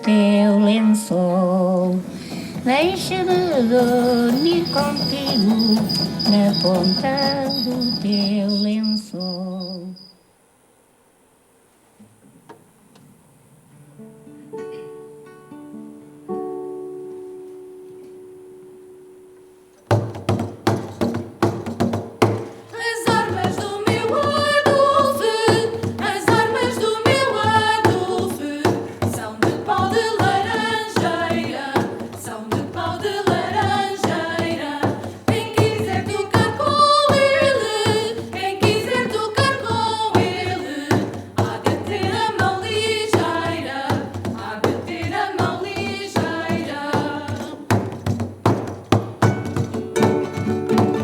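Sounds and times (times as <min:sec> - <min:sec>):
vocal ensemble singing in harmony: 0:00.0 - 0:09.8, 0:22.7 - 0:47.9
rhythmic accompaniment: 0:02.0 - 0:08.6, 0:19.9 - 0:51.0.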